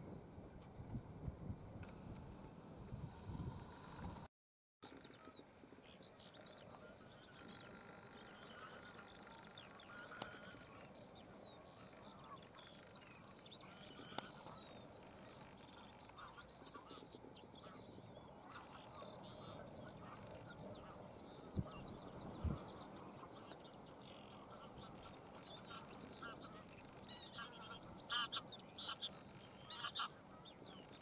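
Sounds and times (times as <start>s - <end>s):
chorus of birds calling: 6.3s - 31.0s.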